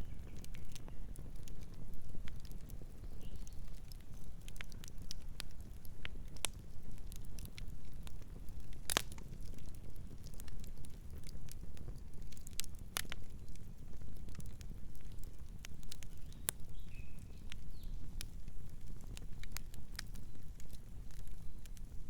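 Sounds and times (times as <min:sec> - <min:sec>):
campfire crackles and pops: 0:00.0 - 0:22.0
low rumble of flames: 0:00.0 - 0:22.0.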